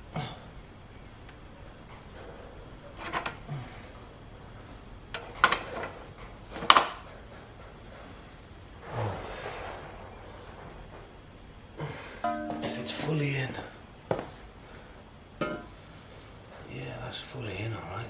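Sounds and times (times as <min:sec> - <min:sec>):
metal parts clinking and knocking: 0:03.0 - 0:03.4, 0:05.1 - 0:07.0.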